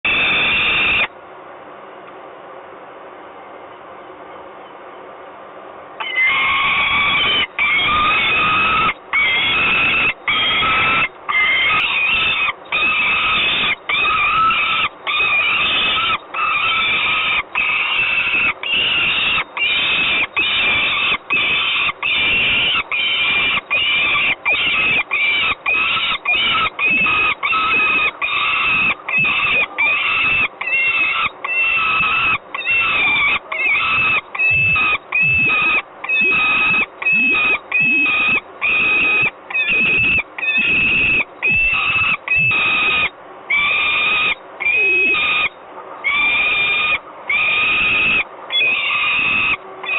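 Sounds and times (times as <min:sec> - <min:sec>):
falcon screeching: 0:00.0 - 0:01.1, 0:06.0 - 0:49.9.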